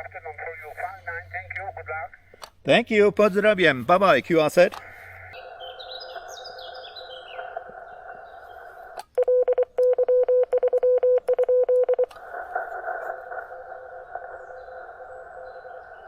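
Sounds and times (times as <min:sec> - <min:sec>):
radio receiver hiss: 0:00.0 - 0:09.2, 0:12.0 - 0:16.0
bird chirping: 0:04.3 - 0:08.9, 0:13.0 - 0:16.0
morse code tone: 0:09.2 - 0:12.1.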